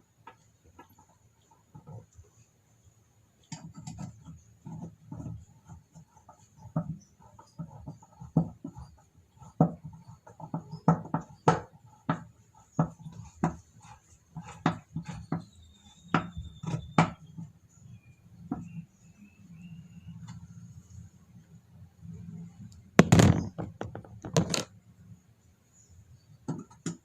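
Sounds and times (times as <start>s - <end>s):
plastic parts knocking and clicking: 23.0s - 24.7s, 26.5s - 27.0s.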